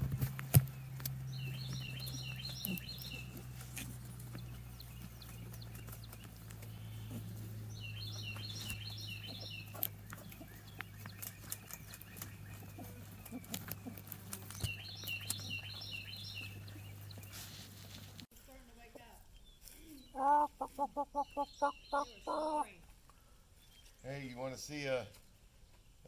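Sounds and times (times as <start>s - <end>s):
songbird singing high notes: 20.0s - 22.7s.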